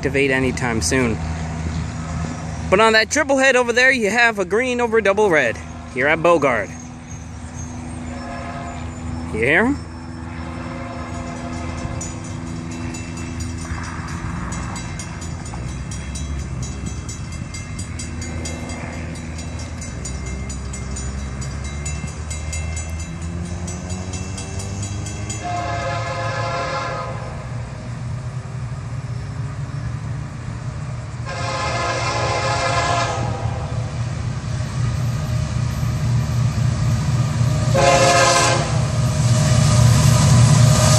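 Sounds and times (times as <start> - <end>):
freight train rumbling: 0.0 - 40.9
train horn blasts: 8.0 - 9.1, 10.3 - 12.2, 25.1 - 27.5, 31.2 - 33.9, 37.6 - 39.0.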